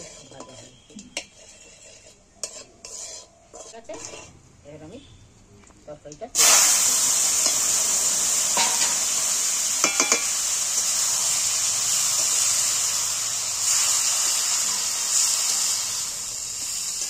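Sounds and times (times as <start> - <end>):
metal spatula stirring: 0.0 - 4.4, 9.8 - 11.0
curry sizzling in a metal pan: 0.0 - 5.0, 6.4 - 17.0
spatula clinking on pan: 9.8 - 10.4.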